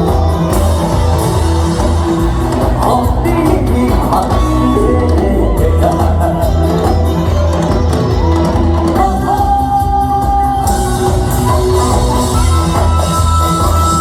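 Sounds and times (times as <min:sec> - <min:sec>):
band with steady bass beat: 0:00.0 - 0:14.0
man singing long notes: 0:02.6 - 0:07.2.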